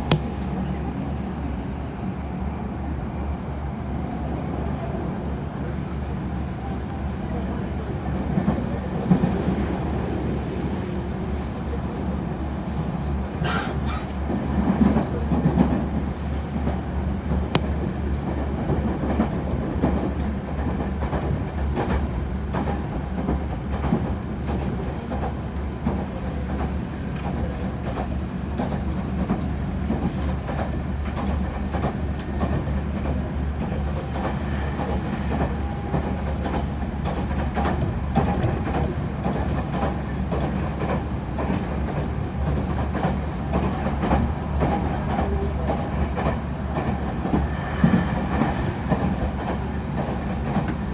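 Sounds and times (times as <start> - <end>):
train rumbling: 0.0 - 50.9.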